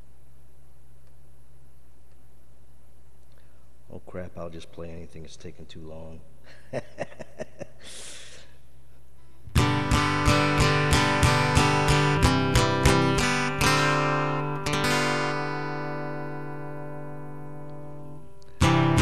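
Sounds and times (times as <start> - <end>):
acoustic guitar strumming chords: 9.5 - 19.0.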